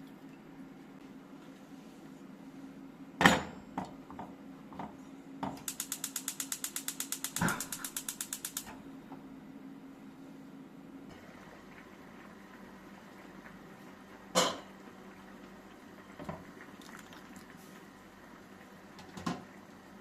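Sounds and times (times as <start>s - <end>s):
mechanism ratcheting clicks: 5.6s - 8.7s.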